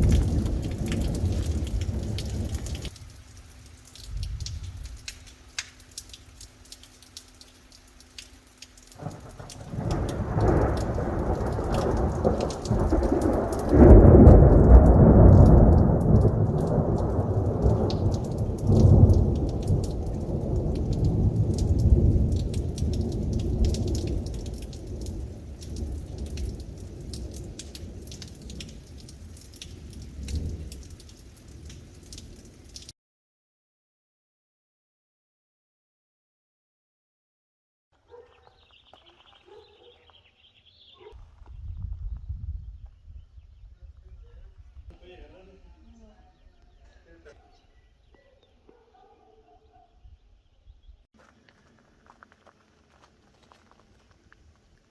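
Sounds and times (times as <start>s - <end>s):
thunder rumbling: 0.0s - 3.2s, 4.0s - 5.2s, 9.0s - 32.5s
light rain pattering: 0.0s - 32.9s, 38.1s - 47.4s, 51.1s - 54.9s.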